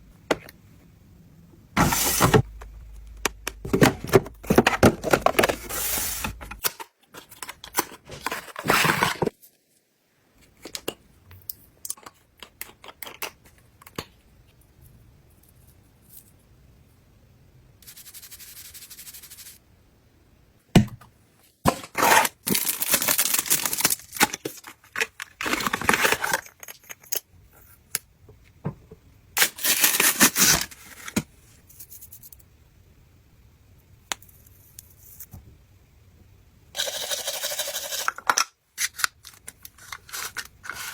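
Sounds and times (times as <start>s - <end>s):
items clicking and tapping: 1.8s - 9.3s, 10.6s - 14.2s
soft steady hiss: 13.4s - 21.6s
wrappers rustling and tearing: 22.0s - 27.0s, 29.4s - 31.2s.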